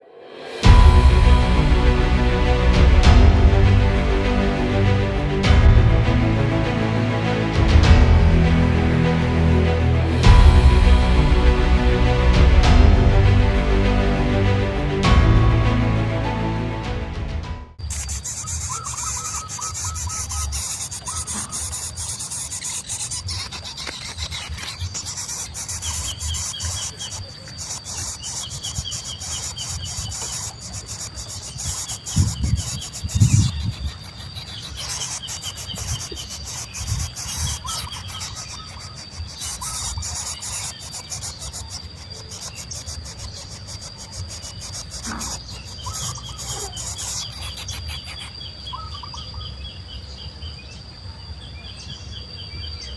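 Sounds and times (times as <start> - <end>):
high insect drone: 0.0 - 16.4, 17.8 - 52.9
low thumps: 0.3 - 17.7
bird chirps: 17.8 - 52.9.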